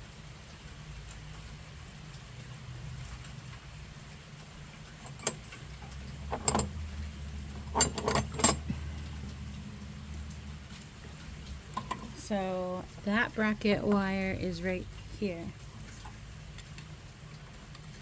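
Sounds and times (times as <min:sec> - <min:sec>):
metallic clicks of tools: 0:05.0 - 0:06.8, 0:07.6 - 0:08.8.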